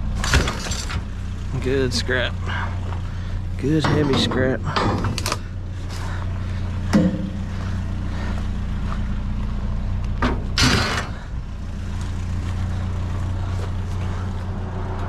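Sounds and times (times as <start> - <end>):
vehicle engine running: 0.0 - 15.0
sharp knocks and clatter: 3.6 - 5.5, 6.9 - 7.7.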